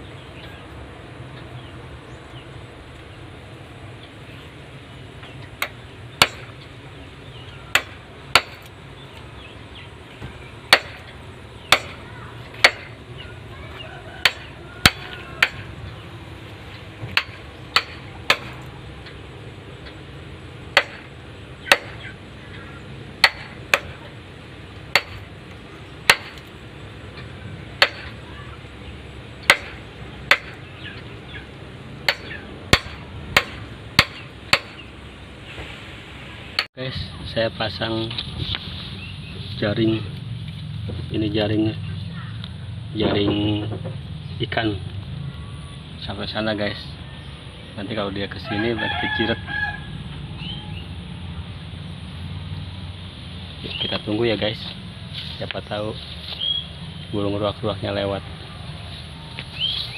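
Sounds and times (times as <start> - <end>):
hand tool striking hard: 5.2 - 6.6, 7.7 - 8.7, 10.2 - 13.0, 14.2 - 15.8, 16.7 - 19.2, 20.7 - 22.2, 23.2 - 24.2, 24.8 - 25.4, 26.0 - 26.5, 27.1 - 28.3, 29.4 - 31.1, 32.0 - 34.9.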